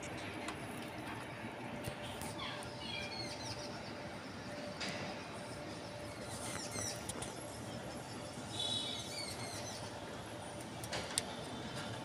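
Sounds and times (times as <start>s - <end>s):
bird whistle: 8.5s - 9.9s.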